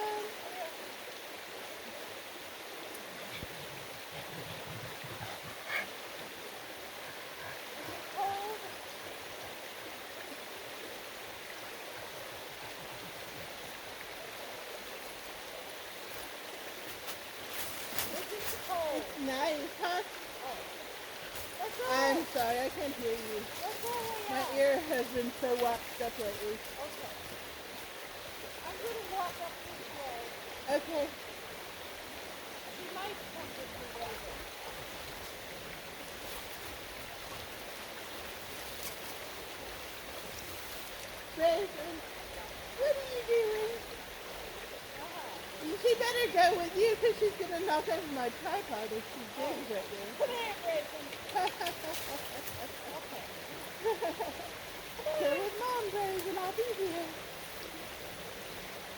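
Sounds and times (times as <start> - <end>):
stream water running: 0.0 - 58.9
faint clicks: 51.1 - 52.6.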